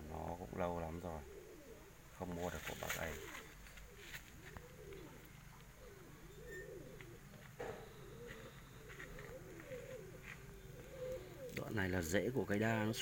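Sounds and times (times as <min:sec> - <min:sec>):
doves cooing: 0:00.0 - 0:13.0.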